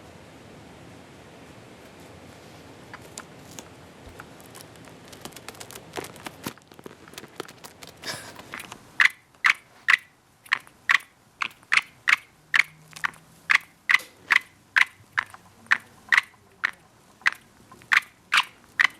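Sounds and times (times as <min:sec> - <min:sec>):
bird beak cracking seeds: 0:02.9 - 0:18.9.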